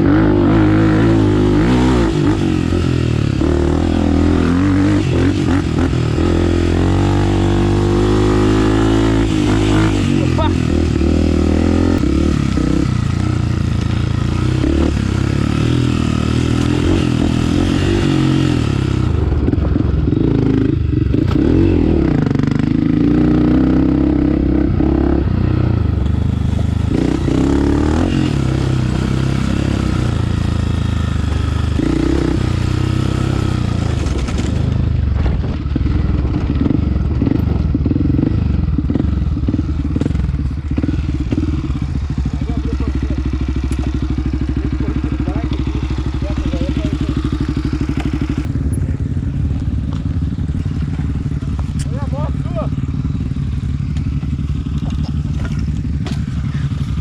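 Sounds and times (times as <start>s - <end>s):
dirt bike engine revving: 0.0s - 57.0s
bike clattering over rough ground: 53.8s - 57.0s.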